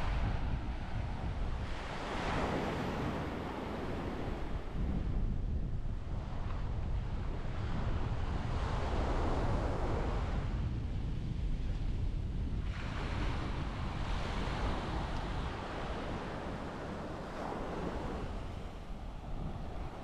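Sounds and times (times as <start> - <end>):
wind buffeting microphone: 0.0 - 20.0
small waves washing up sand: 1.6 - 4.7, 12.6 - 20.0.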